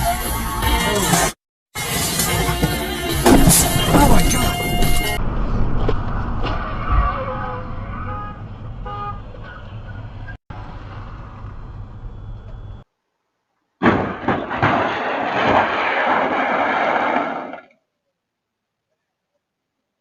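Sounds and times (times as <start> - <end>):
car rumbling on road: 2.4 - 12.8.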